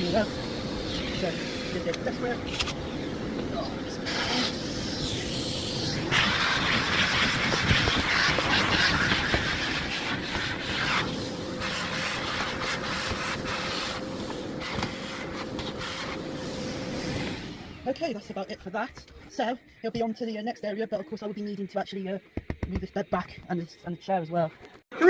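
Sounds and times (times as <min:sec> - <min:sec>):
vacuum cleaner motor whine: 0:00.0 - 0:18.2
air rushing through nozzle: 0:03.9 - 0:17.9.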